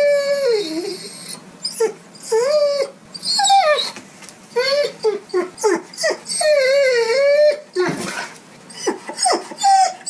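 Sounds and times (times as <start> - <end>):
dog whining and whimpering: 0.0 - 10.0
dog yelping: 0.0 - 10.0.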